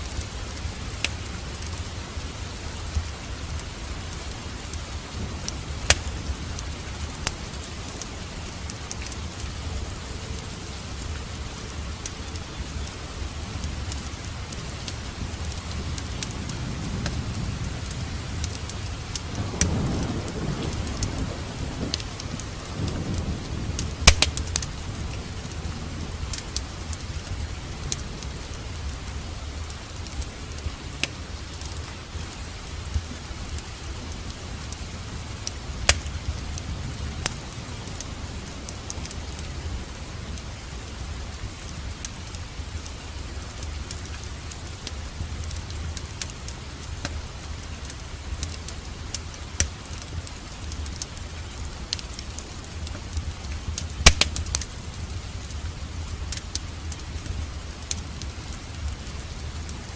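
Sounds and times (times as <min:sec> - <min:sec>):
steady rain: 0:00.0 - 0:59.9
wood fire crackling: 0:00.0 - 0:59.9
low roll of thunder: 0:15.7 - 0:26.3.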